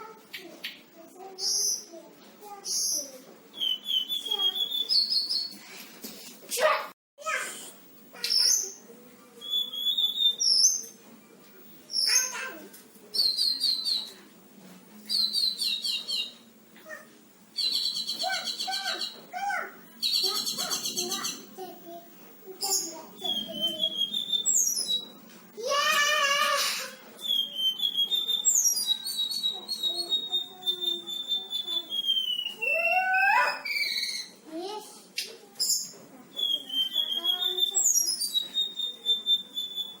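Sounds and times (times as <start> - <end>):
songbird singing: 15.0 - 16.5, 17.6 - 19.3, 19.9 - 21.5, 22.6 - 25.2, 27.2 - 34.4, 35.6 - 40.0.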